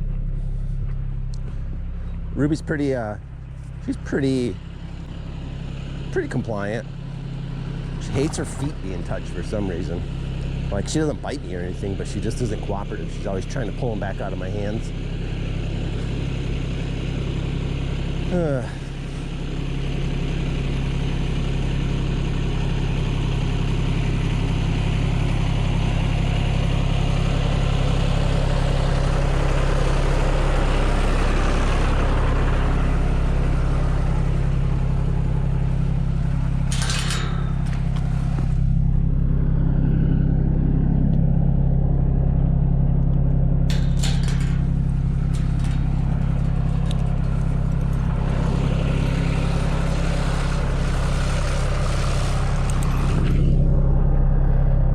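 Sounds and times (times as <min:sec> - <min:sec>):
tractor engine running: 0:00.0 - 0:54.9
brief rattles: 0:36.1 - 0:39.1, 0:43.6 - 0:53.5.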